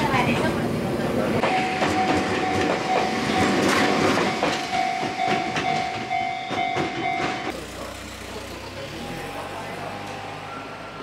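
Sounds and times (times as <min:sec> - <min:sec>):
crossing warning bell ringing: 0:01.4 - 0:07.6, 0:09.0 - 0:11.0
train wheels clacking over rails: 0:01.4 - 0:07.9.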